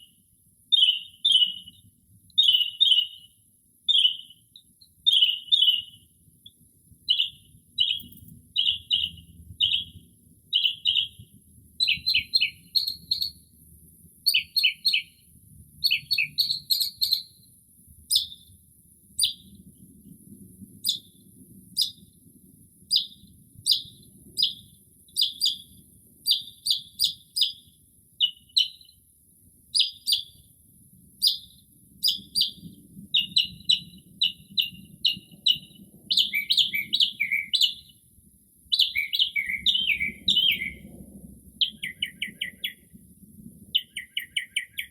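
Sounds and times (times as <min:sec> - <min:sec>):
mockingbird singing: 0:00.7 - 0:01.8, 0:02.4 - 0:04.4, 0:05.0 - 0:06.1, 0:07.1 - 0:11.2, 0:11.8 - 0:13.4, 0:14.2 - 0:15.2, 0:15.8 - 0:17.3, 0:18.1 - 0:18.5, 0:19.2 - 0:19.5, 0:22.9 - 0:28.9, 0:29.8 - 0:30.4, 0:31.2 - 0:32.6, 0:33.2 - 0:38.0, 0:38.7 - 0:40.9, 0:41.6 - 0:42.9, 0:43.7 - 0:44.9.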